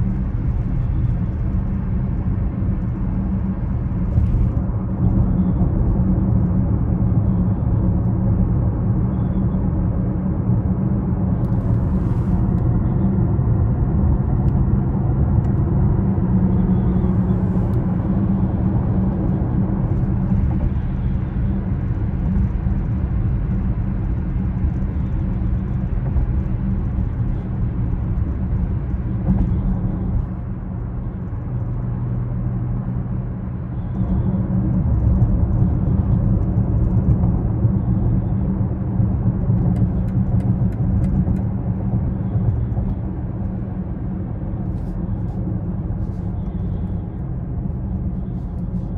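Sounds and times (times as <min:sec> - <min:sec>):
car engine low rumble: 0:00.0 - 0:48.9
road noise: 0:00.0 - 0:48.9.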